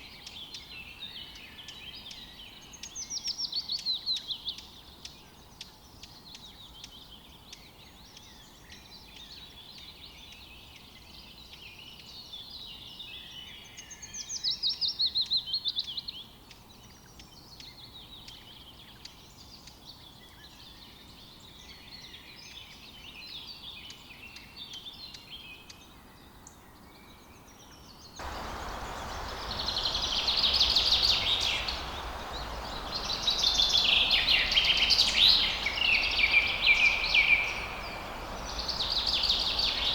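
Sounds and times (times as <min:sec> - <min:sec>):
songbirds singing and chirping: 0:00.0 - 0:39.9
steady rushing noise: 0:28.2 - 0:39.9
fast bird trill: 0:28.3 - 0:39.9.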